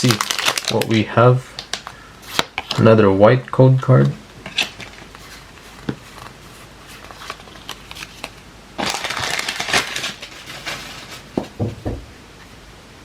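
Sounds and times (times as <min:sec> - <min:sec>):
foil wrapper crinkling: 0:00.0 - 0:02.9, 0:04.5 - 0:11.4
soft knocks: 0:11.4 - 0:12.1.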